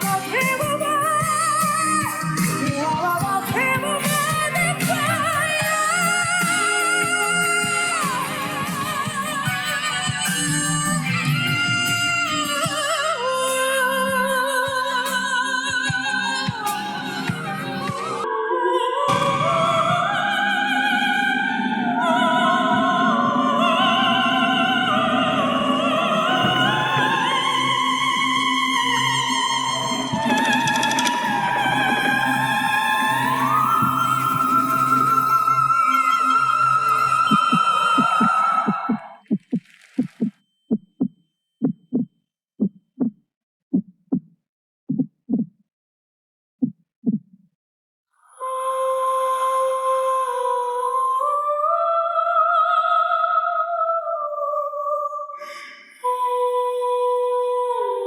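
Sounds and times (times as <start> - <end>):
operatic singing: 0.0 - 39.3
music with held tone: 14.2 - 18.3
heartbeat thumps: 37.3 - 45.6, 46.6 - 47.4.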